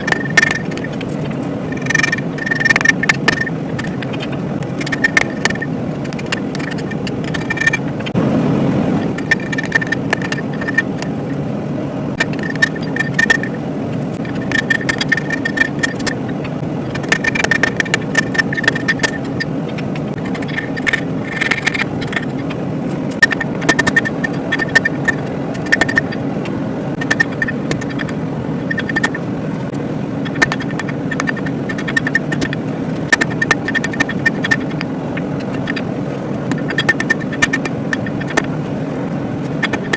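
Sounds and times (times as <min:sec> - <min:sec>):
low rushing noise: 0:00.0 - 0:39.9.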